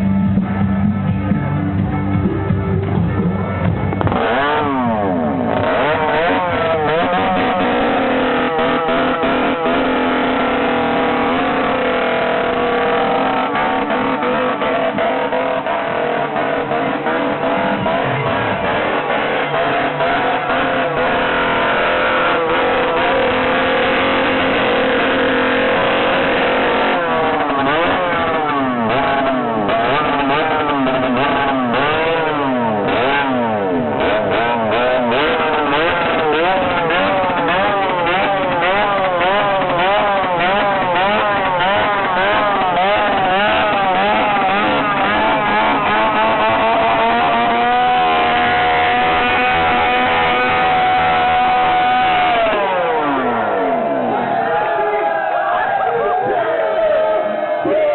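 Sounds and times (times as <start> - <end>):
chainsaw revving: 3.9 - 55.0.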